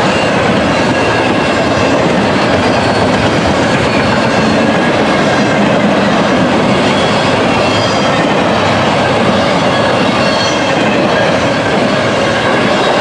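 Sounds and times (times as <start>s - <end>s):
freight train wheels rumbling: 0.0s - 13.0s
faint high squealing: 6.0s - 12.1s.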